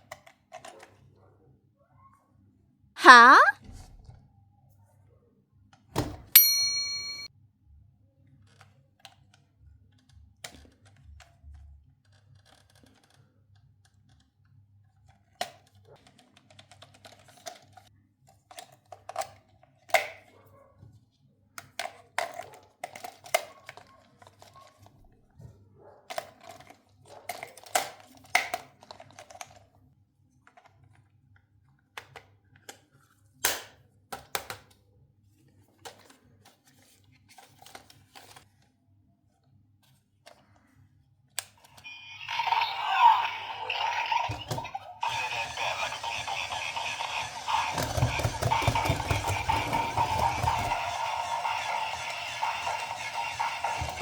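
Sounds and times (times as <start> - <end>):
short ringing ding: 6.4 - 7.3
plastic toy parts clicking: 46.3 - 51.0.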